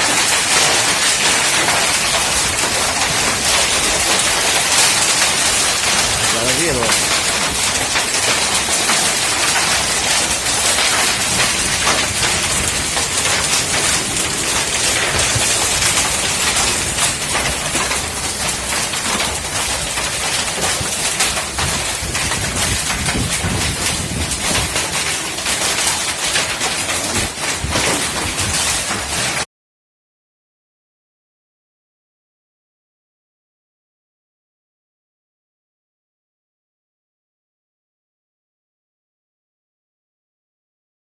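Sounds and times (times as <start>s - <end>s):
hail pelting down: 0.0s - 29.4s
heavy rain hissing: 0.2s - 29.4s.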